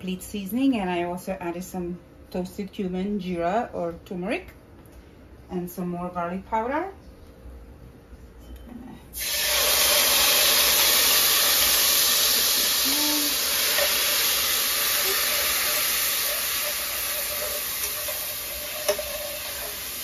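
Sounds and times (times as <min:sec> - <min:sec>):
food sizzling in hot oil: 0:09.2 - 0:20.0.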